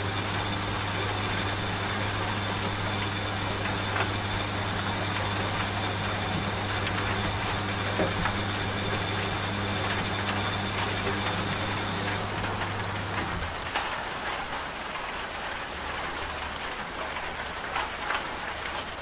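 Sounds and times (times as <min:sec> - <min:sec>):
washing machine motor hum: 0:00.0 - 0:15.0
rain pattering: 0:00.0 - 0:19.0.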